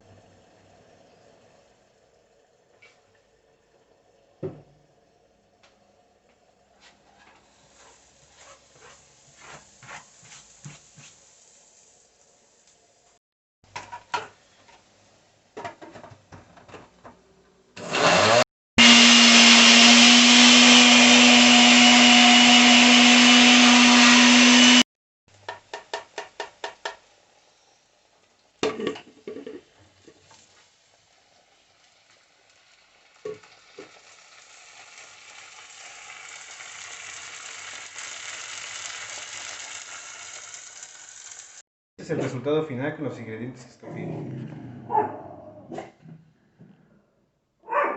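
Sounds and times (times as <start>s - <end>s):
blender grinding: 17.8s - 24.9s, 36.0s - 41.6s.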